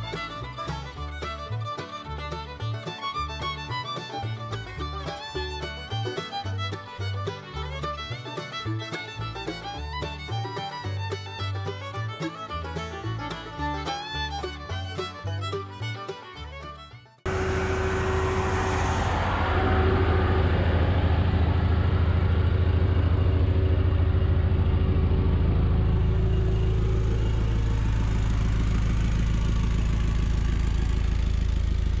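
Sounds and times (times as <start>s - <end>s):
car engine idling: 17.3s - 32.0s.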